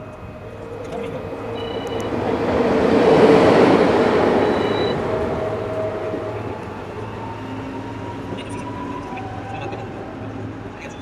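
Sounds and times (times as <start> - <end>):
train rushing past: 0.0 - 10.8.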